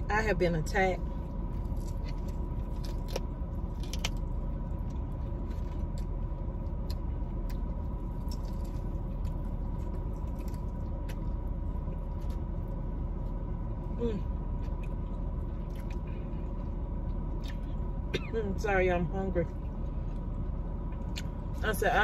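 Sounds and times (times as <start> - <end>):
car cabin hum: 0.0 - 22.0
chewing fried chicken: 1.2 - 18.0.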